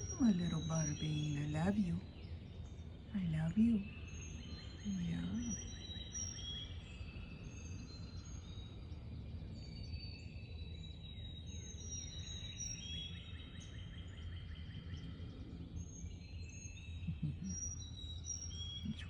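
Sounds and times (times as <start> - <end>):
steady low rumble: 0.0 - 2.1, 17.1 - 17.5.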